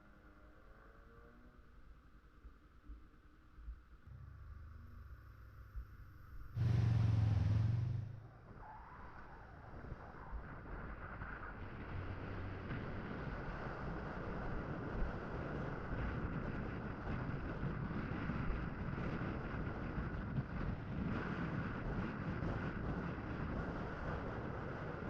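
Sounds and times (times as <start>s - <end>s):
motorcycle engine running: 4.2s - 8.3s
wind rushing over microphone: 9.2s - 25.0s.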